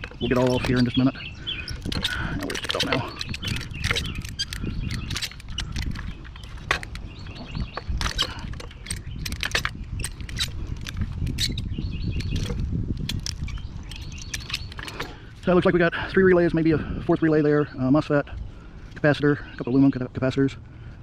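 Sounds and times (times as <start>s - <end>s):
plastic connectors clicking and clattering: 0.0s - 1.1s, 1.7s - 11.6s
steady low rumble: 0.0s - 21.0s.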